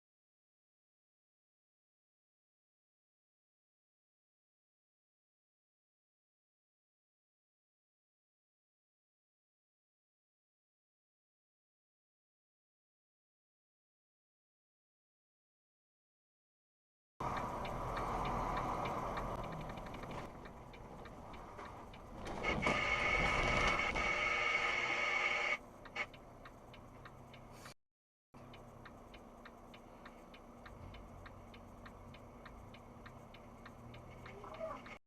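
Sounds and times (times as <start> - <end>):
regular ticking: 17.2 - 27.8, 28.4 - 35.0
vehicle noise: 17.2 - 27.8, 28.4 - 35.0.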